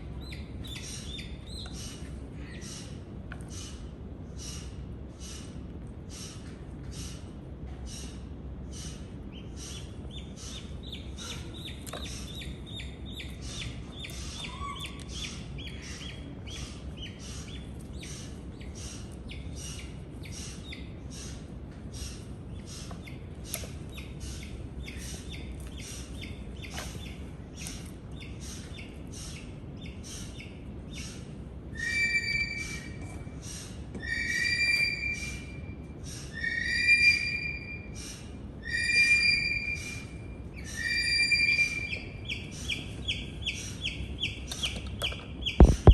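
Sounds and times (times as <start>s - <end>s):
bird chirping: 8.7s - 21.4s, 31.8s - 45.9s
bird ringing calls: 31.8s - 45.9s.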